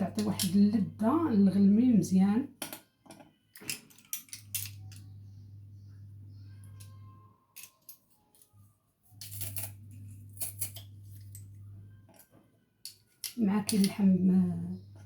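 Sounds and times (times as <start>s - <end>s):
low steady hum: 4.0s - 7.7s, 9.2s - 12.2s, 13.2s - 15.0s.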